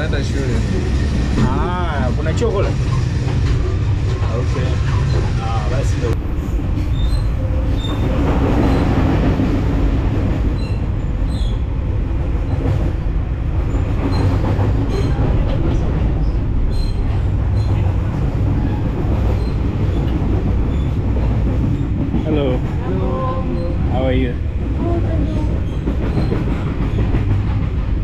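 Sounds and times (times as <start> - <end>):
train wheels rumbling and rattling: 0.0 - 28.0.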